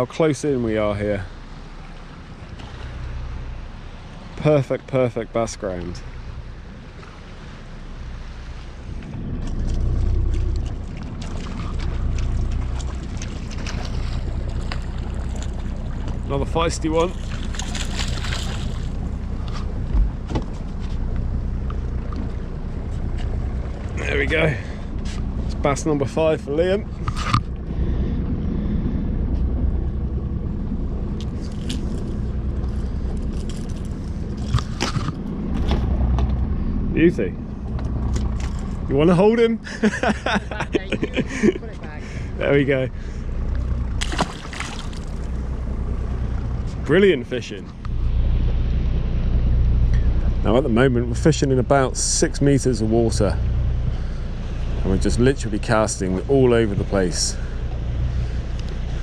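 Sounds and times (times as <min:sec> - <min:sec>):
boat engine idling: 0:00.0 - 0:59.0
wind and water rumble: 0:00.0 - 0:59.0
small water splashes: 0:01.2 - 0:25.6, 0:39.7 - 0:46.8.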